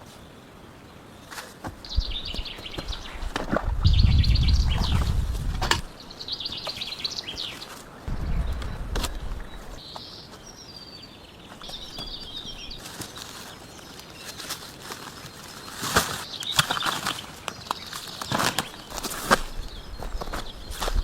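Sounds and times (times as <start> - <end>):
small birds chirping: 0.0 - 21.0
low rumble: 3.6 - 5.9, 8.1 - 9.8.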